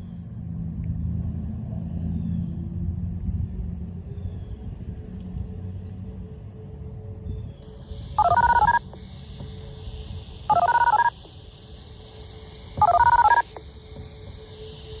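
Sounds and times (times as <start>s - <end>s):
distant warning siren tone: 7.6s - 15.0s
touch-tone dialing bursts: 7.8s - 15.0s.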